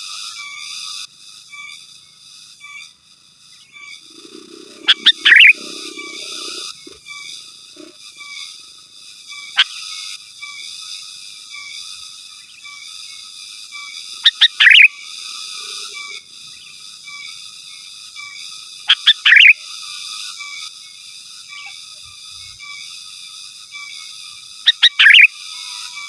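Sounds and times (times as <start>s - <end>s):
bulbul calling: 4.0s - 7.0s, 14.3s - 14.9s, 19.3s - 19.5s, 24.7s - 25.3s
high-pitched background drone: 4.0s - 8.0s.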